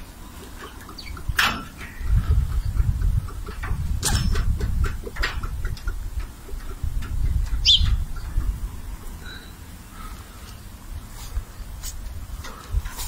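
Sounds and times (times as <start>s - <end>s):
low rumble on microphone: 1.0s - 13.0s
faint clicks: 10.4s - 10.6s.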